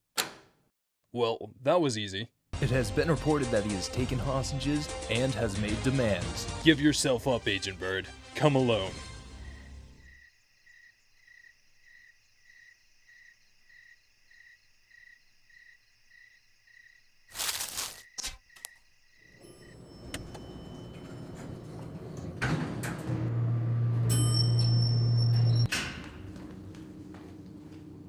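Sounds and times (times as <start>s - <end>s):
cricket chirping: 9.4s - 20.0s.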